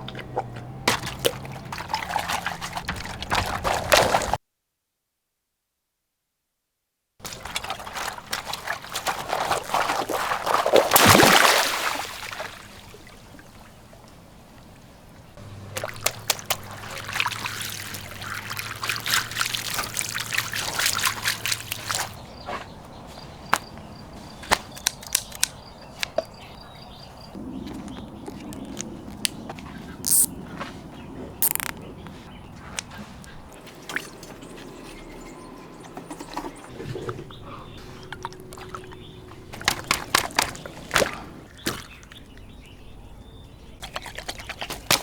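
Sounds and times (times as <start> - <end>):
water pouring and splashing: 0.0 - 4.4, 7.2 - 14.2, 15.4 - 22.2
sharp clicks: 24.5 - 26.3, 31.4 - 31.8.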